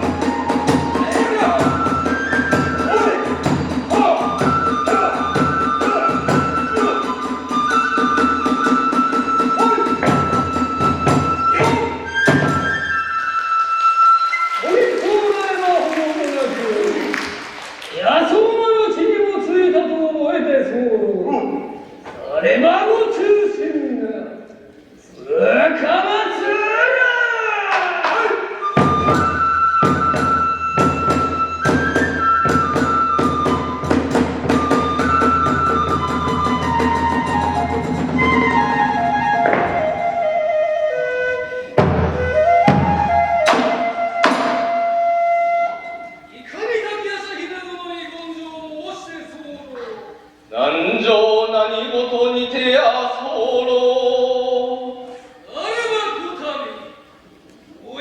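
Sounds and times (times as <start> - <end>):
drum strikes: 0.0 - 12.7, 28.8 - 38.6, 39.4 - 40.0, 41.8 - 44.8
bamboo flute high notes: 0.0 - 15.5, 28.4 - 46.3.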